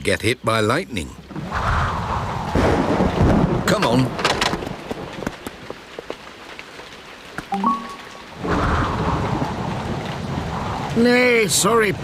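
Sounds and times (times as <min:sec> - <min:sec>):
steady rain: 0:00.0 - 0:12.0
thunder rumble: 0:01.2 - 0:07.0, 0:07.8 - 0:12.0
water drips: 0:06.2 - 0:08.4.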